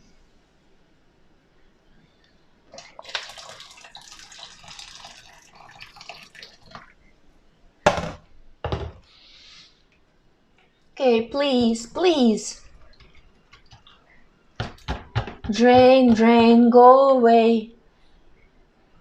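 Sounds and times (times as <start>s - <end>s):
water pouring and splashing: 2.7s - 7.0s.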